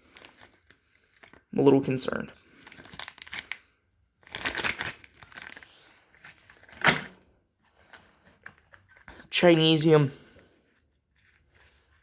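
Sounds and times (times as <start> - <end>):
crinkling: 0.0 - 1.5, 2.3 - 9.3, 10.4 - 12.0
small parts rummaged through: 0.0 - 1.5, 2.5 - 9.4.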